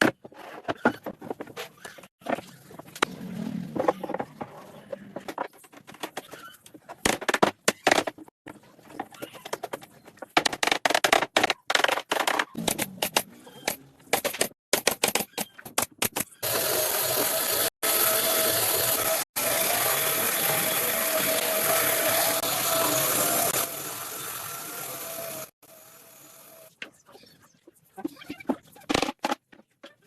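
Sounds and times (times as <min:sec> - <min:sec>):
power tool running: 0:16.4 - 0:26.7.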